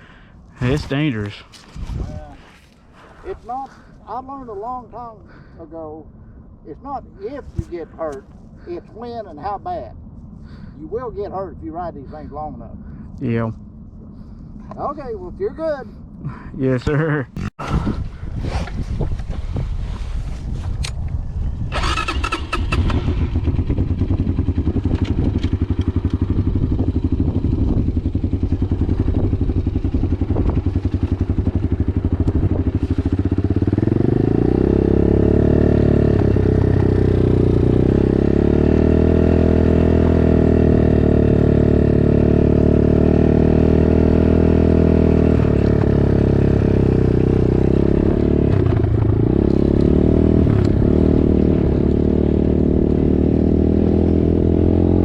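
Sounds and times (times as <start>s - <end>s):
dirt bike engine revving: 21.8s - 55.0s.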